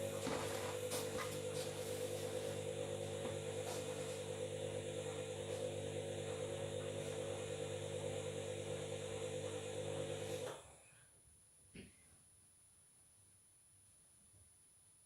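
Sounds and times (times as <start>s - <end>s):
washing machine motor humming: 0.0s - 10.7s.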